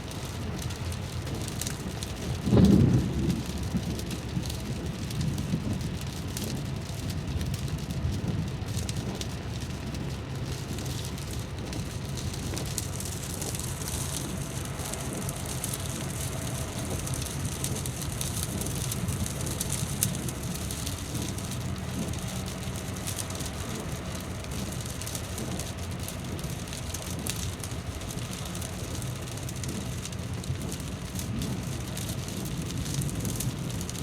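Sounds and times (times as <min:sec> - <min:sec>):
rain drops ticking: 0:00.0 - 0:34.0
rain hiss: 0:00.0 - 0:34.0
low rumble: 0:09.5 - 0:34.0.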